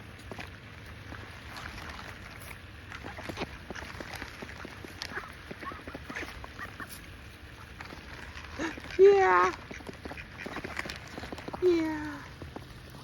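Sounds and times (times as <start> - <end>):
duck bills clicking: 7.8 - 11.6
soft duck quacks: 8.6 - 10.8.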